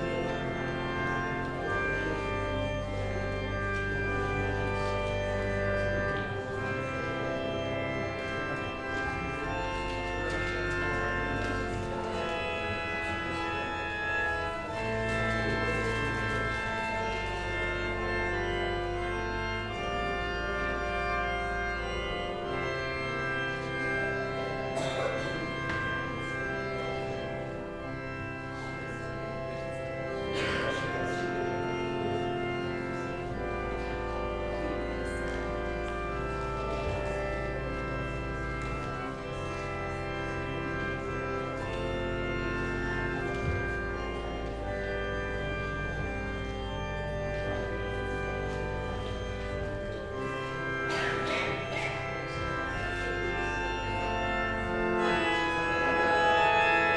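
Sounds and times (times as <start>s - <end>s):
organ chords: 0.0s - 56.9s.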